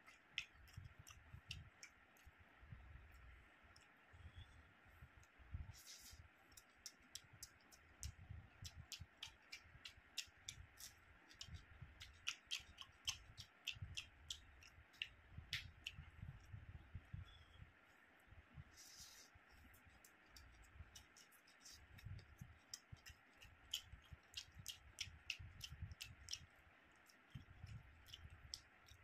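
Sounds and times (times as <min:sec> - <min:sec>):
chewing and mouth smacks: 0:00.0 - 0:02.4, 0:06.6 - 0:16.4, 0:19.7 - 0:29.0
sharp wet clicks: 0:00.0 - 0:02.4, 0:06.5 - 0:16.5, 0:19.7 - 0:29.0.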